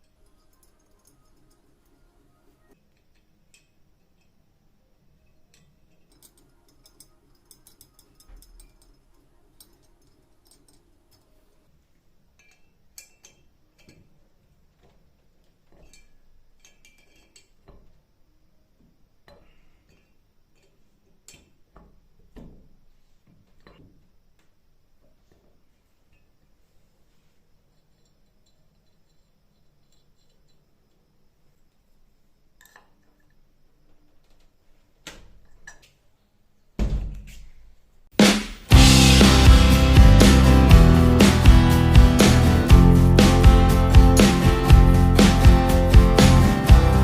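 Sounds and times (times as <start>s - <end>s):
metallic clicks and clinks: 0.0s - 2.1s, 5.2s - 11.5s, 12.3s - 14.2s, 15.4s - 17.8s, 27.7s - 31.0s.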